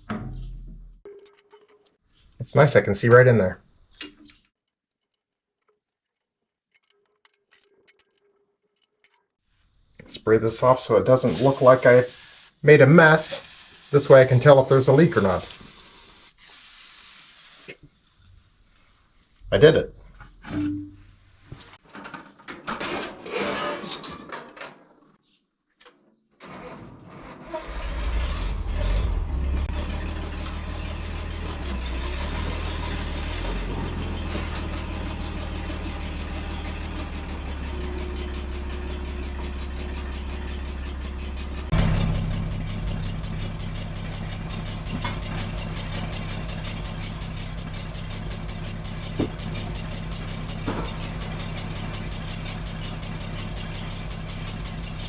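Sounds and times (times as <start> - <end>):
tractor engine running: 1.0 - 9.3, 27.7 - 55.0.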